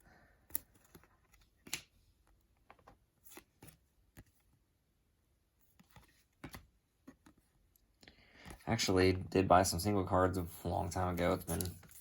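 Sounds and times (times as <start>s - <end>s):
trading cards clicking and rustling: 0.4s - 4.5s, 11.0s - 12.0s.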